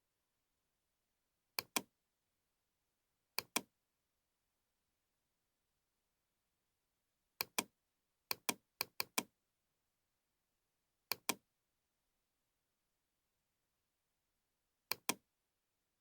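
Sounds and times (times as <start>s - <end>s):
computer mouse clicking: 1.6s - 1.8s, 3.4s - 3.6s, 8.3s - 9.3s, 11.1s - 11.4s, 14.9s - 15.2s.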